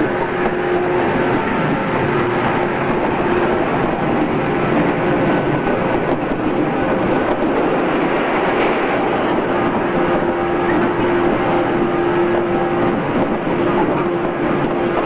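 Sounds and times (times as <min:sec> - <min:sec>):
electric train running: 0:00.0 - 0:15.0.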